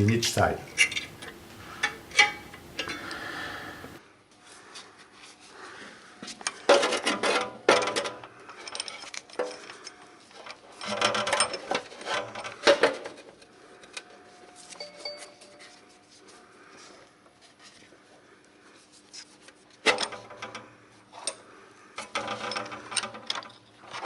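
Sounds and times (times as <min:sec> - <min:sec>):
metal tools clinking: 0:00.0 - 0:03.9.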